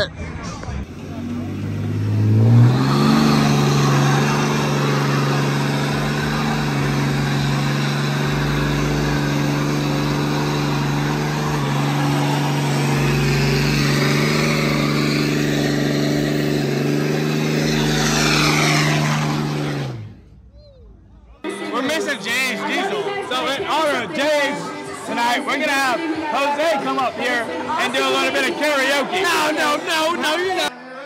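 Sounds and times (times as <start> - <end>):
truck engine at high revs: 0.7 - 20.5.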